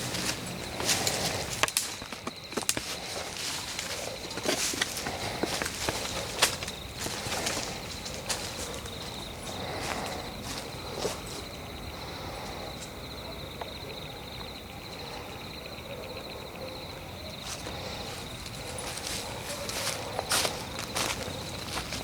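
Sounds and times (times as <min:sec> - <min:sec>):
footsteps crunching on forest floor: 0:00.0 - 0:11.6, 0:17.4 - 0:22.0
insects trilling: 0:00.0 - 0:22.0.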